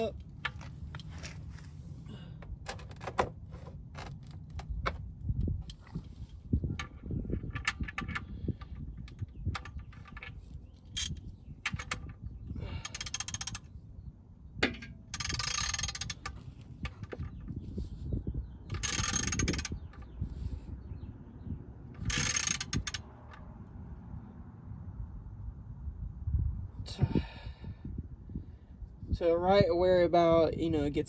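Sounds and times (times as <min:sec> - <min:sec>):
socket ratchet clicking: 0:12.9 - 0:13.6, 0:15.2 - 0:16.4, 0:18.7 - 0:19.8, 0:22.0 - 0:23.0.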